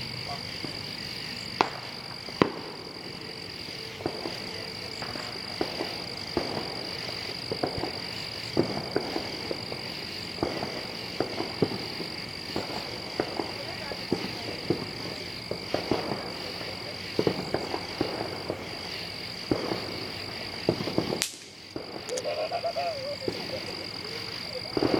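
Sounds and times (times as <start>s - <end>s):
fireworks popping: 0.0s - 24.9s
high-pitched night chorus: 18.5s - 24.9s.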